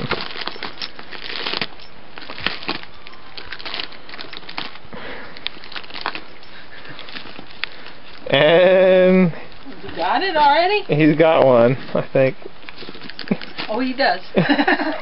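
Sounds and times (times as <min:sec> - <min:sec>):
wrapping paper crinkling and tearing: 0:00.0 - 0:08.5, 0:12.6 - 0:14.0.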